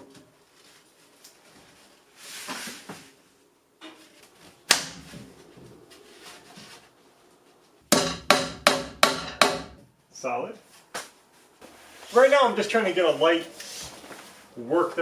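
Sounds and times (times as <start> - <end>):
sharp ringing knocks: 7.9 - 9.8.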